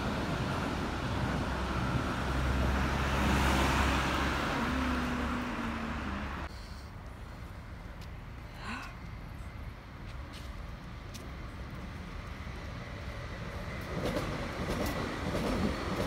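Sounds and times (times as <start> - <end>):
electric train passing: 0.0 - 6.5, 9.1 - 16.0
street noise: 0.0 - 16.0
car driving past: 1.5 - 6.5.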